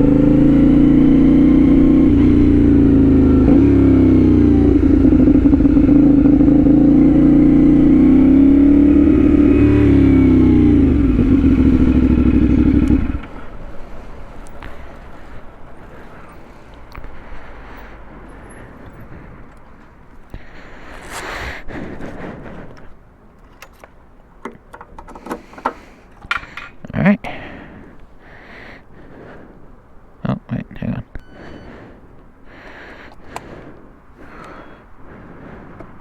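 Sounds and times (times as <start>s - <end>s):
motorcycle engine running: 0.0s - 16.4s.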